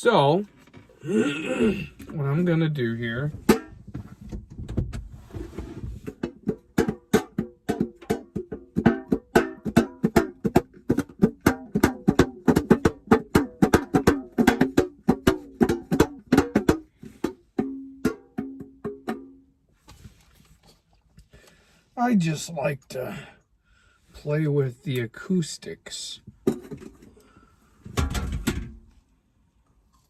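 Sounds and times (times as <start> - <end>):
plucked string instrument: 3.3 - 3.9, 6.1 - 19.5.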